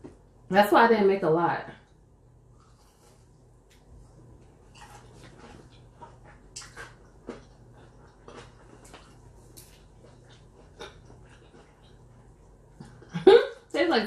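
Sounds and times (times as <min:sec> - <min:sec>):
crunchy chewing: 0:02.5 - 0:13.1.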